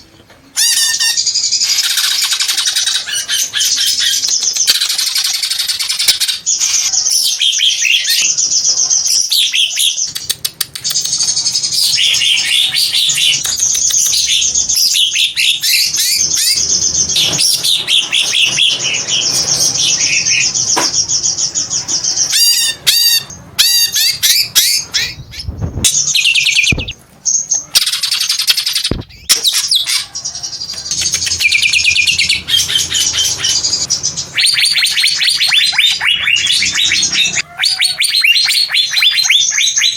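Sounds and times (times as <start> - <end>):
bird singing whistled notes: 22.2 - 29.7.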